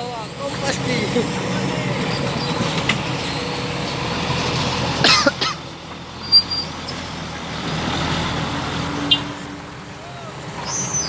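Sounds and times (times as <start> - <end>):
vehicle engine rumbling: 0.0 - 11.0
short cough-like vocal sound: 5.0 - 5.6.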